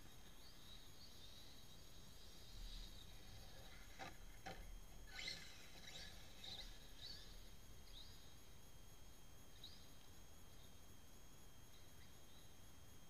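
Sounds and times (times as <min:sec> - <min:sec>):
faint bird chirps: 0:05.1 - 0:08.6, 0:09.5 - 0:10.9.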